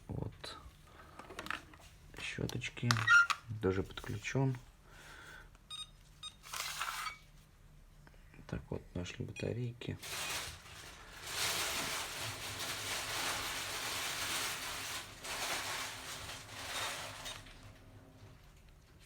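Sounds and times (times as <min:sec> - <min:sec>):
packaging rustling: 0:10.0 - 0:17.8.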